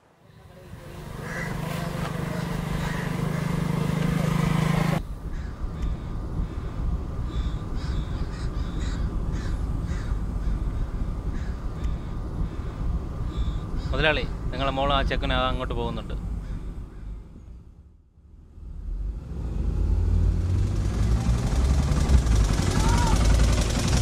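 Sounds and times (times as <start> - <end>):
motorcycle engine running: 0.5 - 5.0, 20.4 - 24.0
crows cawing: 1.1 - 4.4, 5.3 - 12.7, 16.4 - 17.2.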